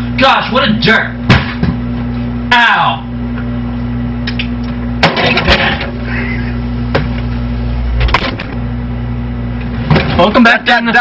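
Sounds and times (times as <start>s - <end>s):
refrigerator humming: 0.0s - 11.0s.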